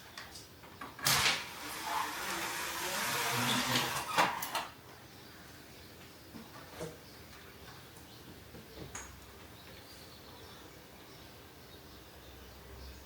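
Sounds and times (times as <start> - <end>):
door sliding noise: 1.1 - 4.7.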